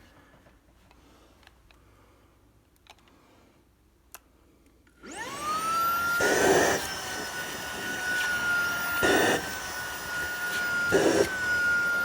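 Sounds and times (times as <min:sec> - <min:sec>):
vacuum motor whine: 0:05.0 - 0:12.0.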